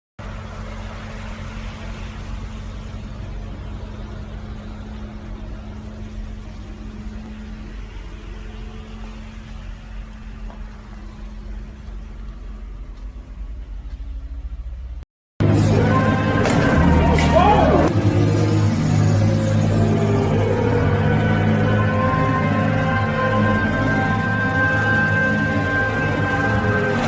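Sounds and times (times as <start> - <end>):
road noise: 0.2 - 27.0
vehicle engine hum: 0.2 - 27.0.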